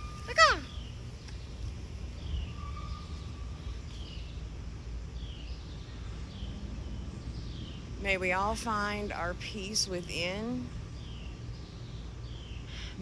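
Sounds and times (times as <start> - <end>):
bird chirping: 0.0 - 13.0
low background noise: 0.0 - 13.0
whistled bird note: 2.2 - 4.2.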